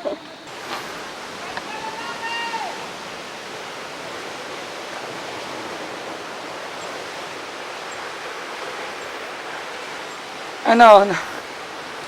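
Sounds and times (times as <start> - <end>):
faint high pips: 0.0 - 3.0
steady outdoor rushing noise: 0.0 - 12.0.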